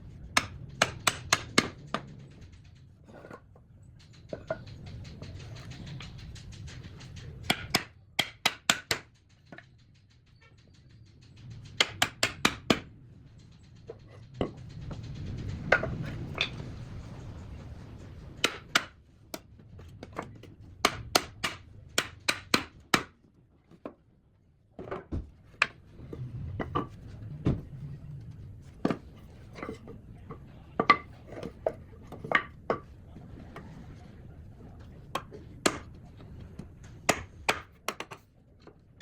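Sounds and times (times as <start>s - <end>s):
hand tools knocking on wood: 0.4s - 2.1s, 6.8s - 9.8s, 11.6s - 12.9s, 18.4s - 19.0s, 20.1s - 23.1s, 37.1s - 38.2s.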